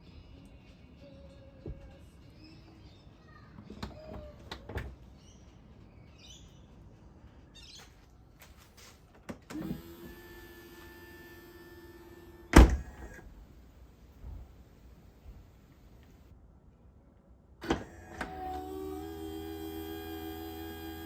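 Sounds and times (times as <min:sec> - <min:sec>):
electric motor whirring: 0:09.6 - 0:13.2, 0:17.8 - 0:21.0.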